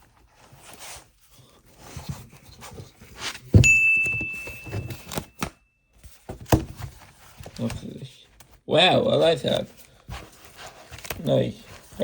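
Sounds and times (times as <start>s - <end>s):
high ringing ding: 3.6s - 5.5s.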